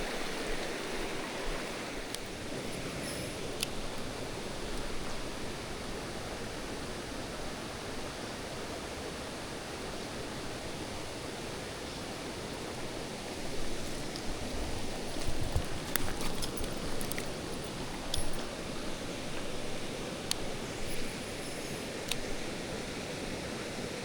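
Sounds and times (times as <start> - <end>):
stream rushing over rocks: 0.0 - 24.0.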